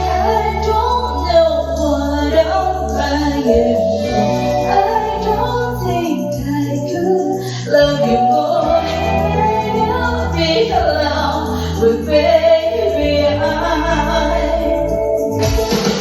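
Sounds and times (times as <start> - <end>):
low bass line: 0.0 - 7.1
backing music: 0.0 - 16.0
person singing pop song: 0.0 - 16.0.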